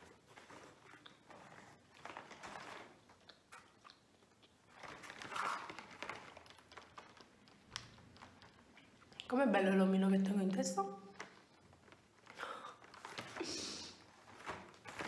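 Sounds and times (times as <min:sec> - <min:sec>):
chewing with mouth clicks: 0:00.4 - 0:02.4, 0:03.0 - 0:09.3.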